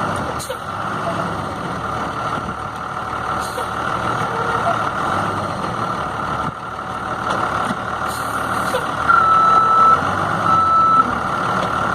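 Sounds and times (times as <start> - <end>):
diesel truck engine running: 0.0 - 11.9
reversing alarm beep: 9.1 - 11.1.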